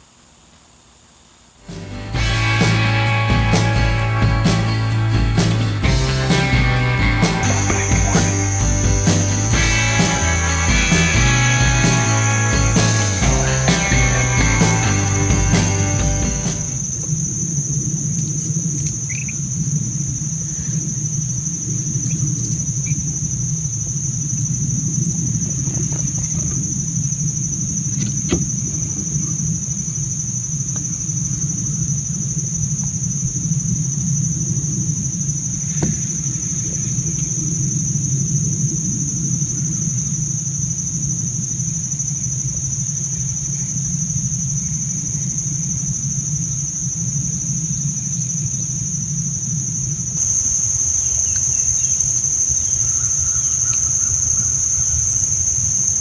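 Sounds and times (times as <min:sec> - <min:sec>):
insects chirping: 0:00.0 - 0:56.0
low rumble: 0:01.7 - 0:17.0.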